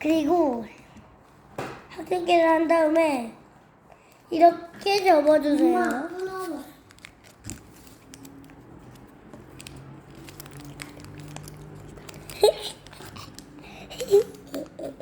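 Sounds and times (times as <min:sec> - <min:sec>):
paper being folded and creased: 0:04.9 - 0:15.0.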